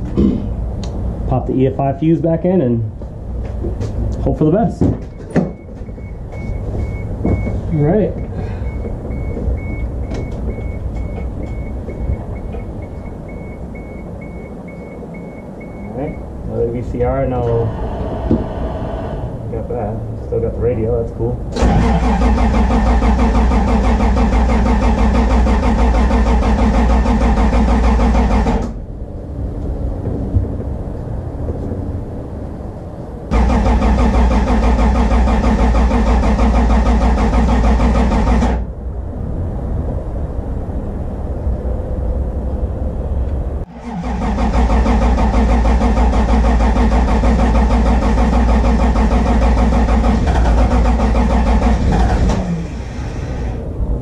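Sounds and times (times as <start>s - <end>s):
car engine cranking by starter: 21.5s - 28.8s, 33.3s - 38.7s, 43.7s - 53.6s.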